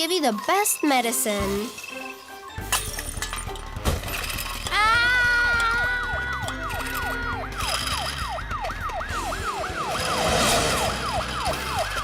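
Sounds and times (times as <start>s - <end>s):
cartoon ambulance siren: 4.9s - 12.0s.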